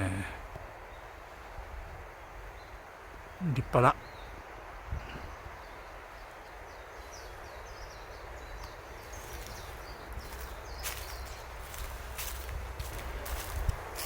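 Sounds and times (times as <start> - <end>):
outdoor background noise: 0.0 - 14.0
rustle: 0.0 - 14.0
small bird chirping: 5.5 - 13.7.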